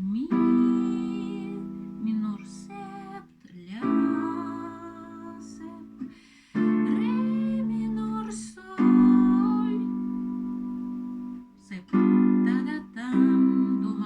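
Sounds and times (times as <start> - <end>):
acoustic guitar chords ringing: 0.0 - 14.0.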